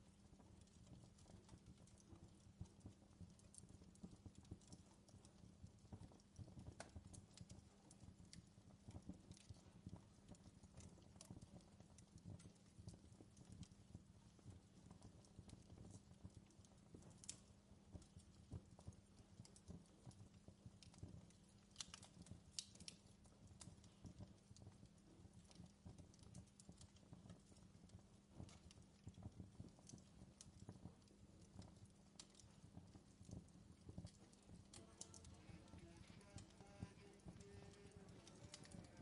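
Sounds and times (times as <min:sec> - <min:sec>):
campfire crackling: 0:00.0 - 0:39.0.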